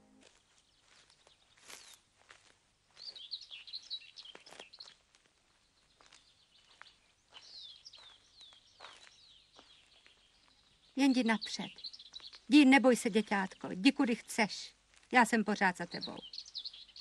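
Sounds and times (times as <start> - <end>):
faint footsteps: 0.0 - 10.9, 12.0 - 12.5
birds chirping and whistling: 3.0 - 4.9, 6.3 - 12.5, 15.9 - 17.0.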